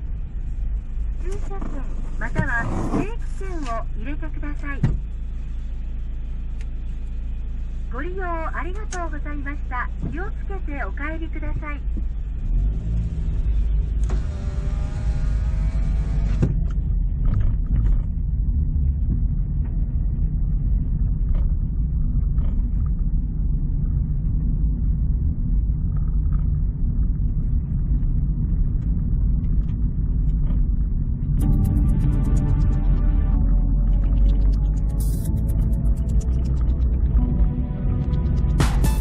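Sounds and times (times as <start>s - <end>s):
car engine and road rumble: 0.0s - 39.0s
power window motor whining: 14.0s - 16.6s.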